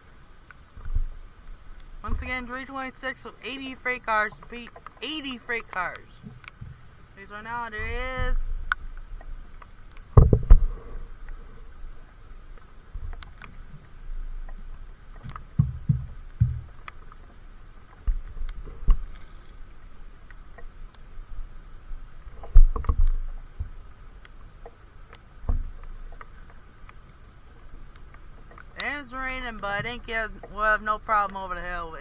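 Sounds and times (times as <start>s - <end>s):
faint steady hum: 0.0s - 32.0s
raindrop ticks: 0.0s - 32.0s
low thumps: 15.3s - 16.9s.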